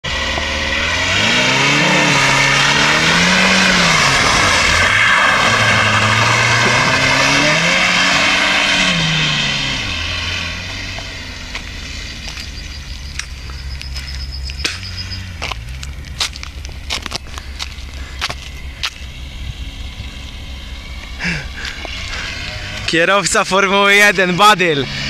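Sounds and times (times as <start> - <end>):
car engine revving hard: 0.0 - 25.0
tyres spinning on wet asphalt: 0.1 - 18.6.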